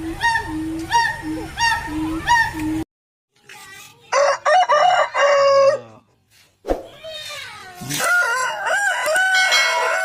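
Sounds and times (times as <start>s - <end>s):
rooster crowing: 4.2s - 5.9s, 8.0s - 10.0s.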